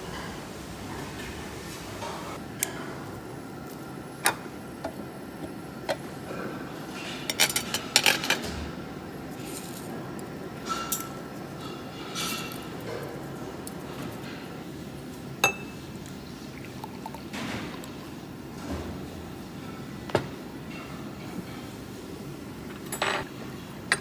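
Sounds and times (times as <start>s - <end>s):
low background hum: 0.0s - 24.0s
cutlery and dishes clinking: 6.9s - 8.6s, 10.6s - 14.4s.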